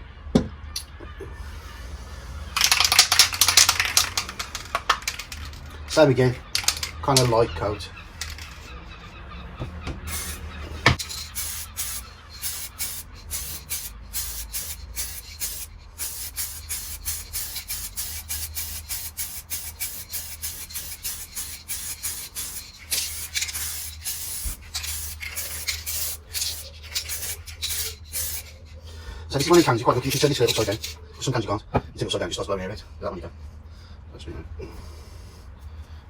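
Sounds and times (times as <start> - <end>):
aerosol can spraying in pulses: 1.6 - 7.4, 8.0 - 8.7, 10.1 - 31.0.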